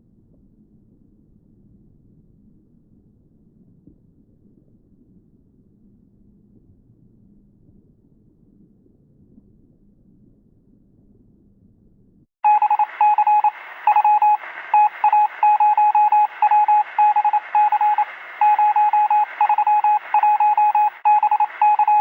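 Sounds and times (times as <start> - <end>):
faint low rumble: 0.0 - 22.0
morse code beeps: 12.4 - 22.0
radio static: 12.5 - 22.0.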